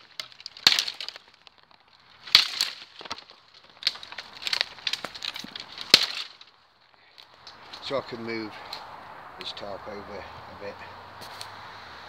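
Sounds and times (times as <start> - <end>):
dead wood cracking and snapping: 0.0 - 9.5
branches rustling: 0.0 - 12.0.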